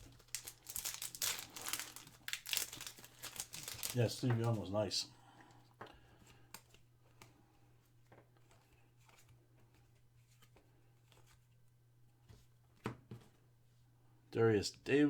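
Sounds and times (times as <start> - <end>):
trading cards rustling: 0.0 - 4.9.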